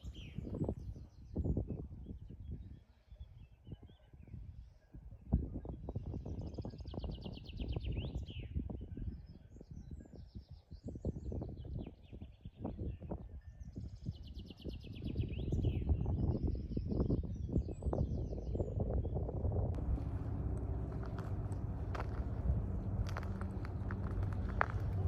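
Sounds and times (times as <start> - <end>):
low rumbling noise: 19.3 - 25.0.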